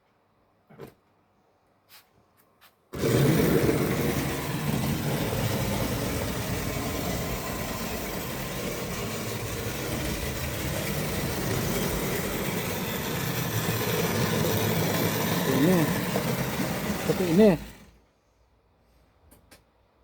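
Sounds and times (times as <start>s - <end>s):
model train motor hum and rattle: 3.0s - 18.0s.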